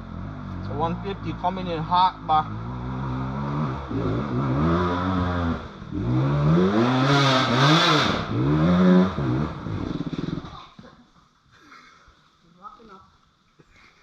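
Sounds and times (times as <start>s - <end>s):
dirt bike engine revving: 0.0s - 10.6s.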